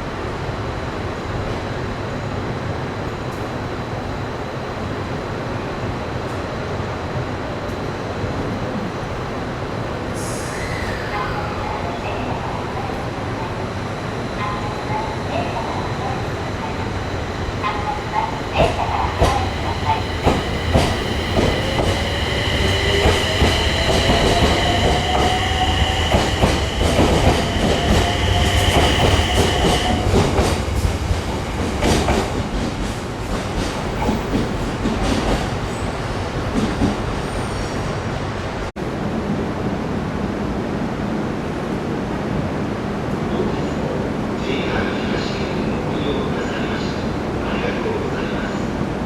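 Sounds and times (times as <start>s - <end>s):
train wheels squealing: 10.2s - 13.0s, 14.1s - 30.5s
train motor whine: 13.5s - 32.4s.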